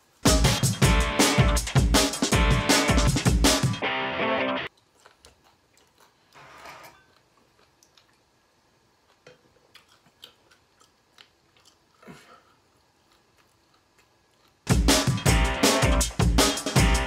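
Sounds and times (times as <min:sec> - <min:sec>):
person chewing: 0:04.7 - 0:14.7.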